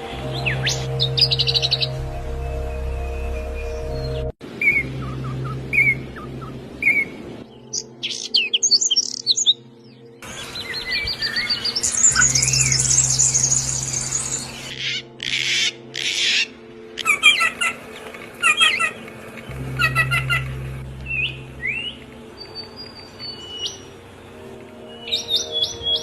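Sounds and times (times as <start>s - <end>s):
songbirds chirping and trilling: 0.0s - 26.0s.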